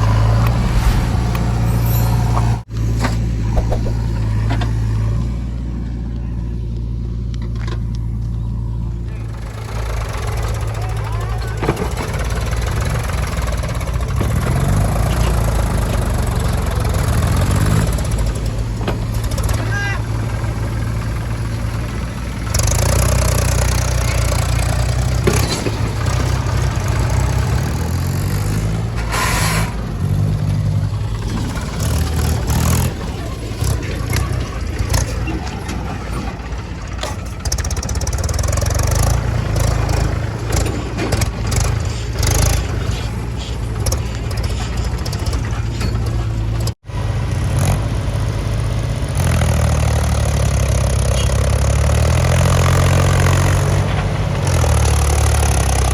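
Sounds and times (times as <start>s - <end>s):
machinery knocks and clanks: 0.0s - 5.0s, 31.1s - 46.7s
diesel engine droning and revving: 0.0s - 55.9s.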